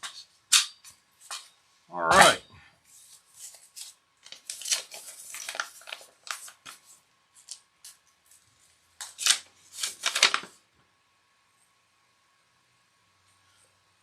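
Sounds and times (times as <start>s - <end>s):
paper rustling and crinkling: 2.2s - 10.6s.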